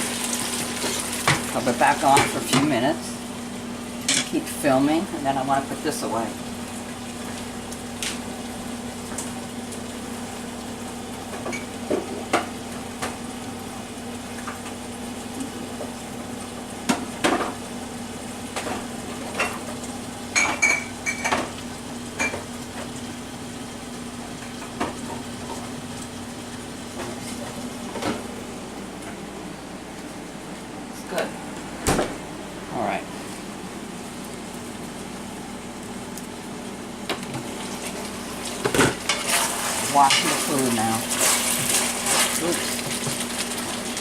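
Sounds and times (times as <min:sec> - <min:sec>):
faint sizzle of stir fry: 0:00.0 - 0:04.5, 0:05.6 - 0:29.1, 0:32.6 - 0:44.0.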